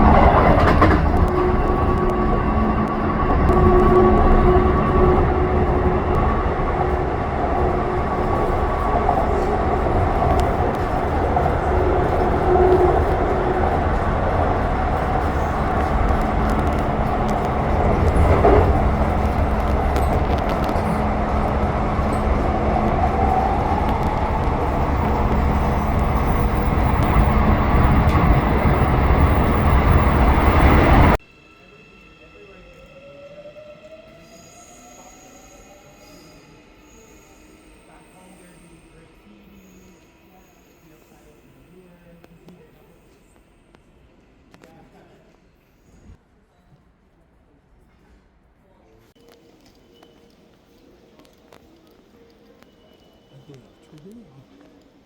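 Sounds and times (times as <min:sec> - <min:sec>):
train rumble inside carriage: 0:00.0 - 0:31.2.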